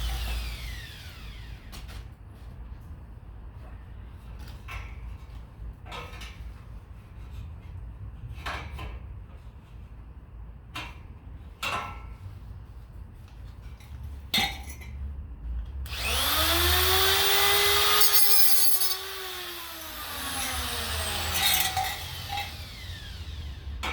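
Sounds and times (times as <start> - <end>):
electric grinder whining: 0.0 - 1.7, 15.9 - 23.9
grinding: 15.9 - 23.9.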